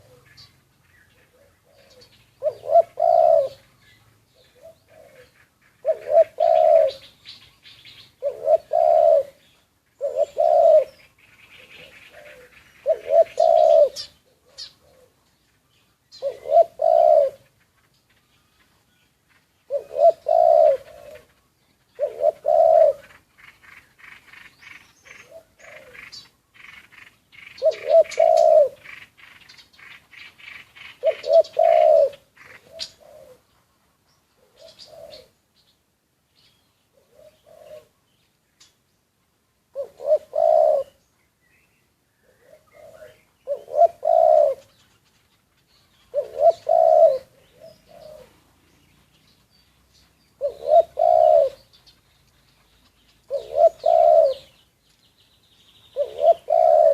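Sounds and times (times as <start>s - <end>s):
dove cooing: 0.0s - 15.3s, 16.1s - 17.6s, 19.6s - 33.7s, 34.4s - 35.4s, 36.9s - 38.0s, 39.7s - 41.0s, 42.2s - 45.0s, 46.0s - 48.6s, 50.3s - 51.8s, 53.2s - 54.6s, 55.9s - 56.9s
small birds chirping: 0.0s - 56.9s.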